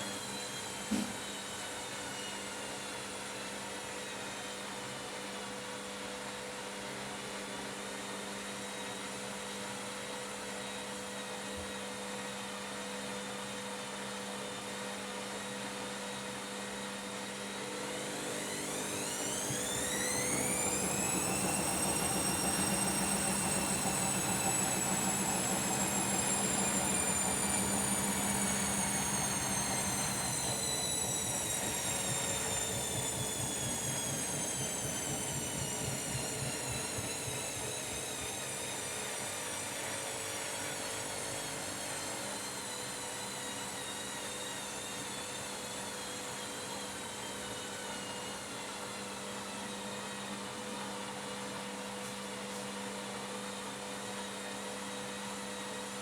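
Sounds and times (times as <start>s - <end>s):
washing machine spinning down: 0.0s - 6.7s, 7.3s - 56.0s.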